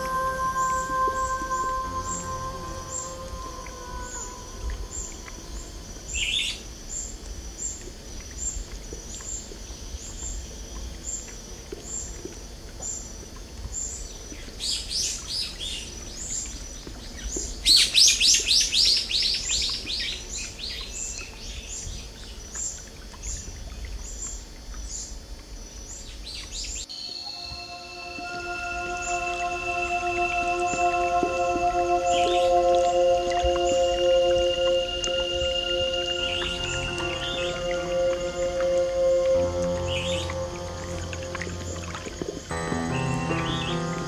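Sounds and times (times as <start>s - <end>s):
music: 0.0s - 5.9s, 26.9s - 44.0s
songbird chirping and trilling: 0.0s - 8.6s, 26.1s - 44.0s.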